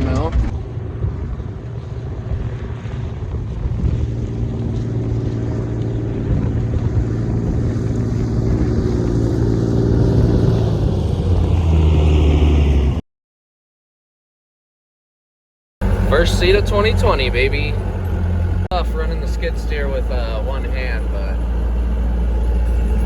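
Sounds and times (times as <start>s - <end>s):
tractor engine running under load: 15.8s - 23.0s.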